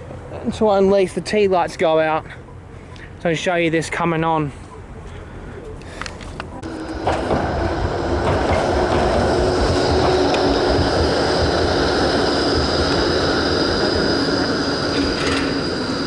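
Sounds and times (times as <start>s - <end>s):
tram rolling noise: 0.0s - 16.0s
tram wheels squealing on rails: 6.6s - 16.0s.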